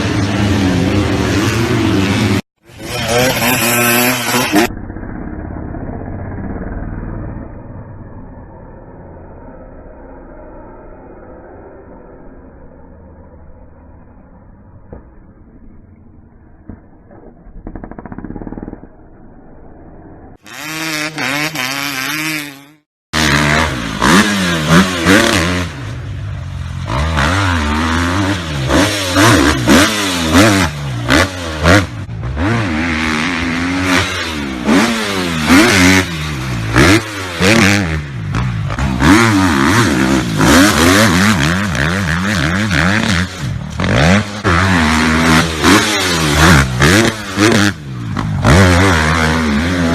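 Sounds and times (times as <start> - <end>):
motocross bikes revving: 0.0 - 5.3, 20.4 - 49.9
steady engine drone: 0.0 - 17.4.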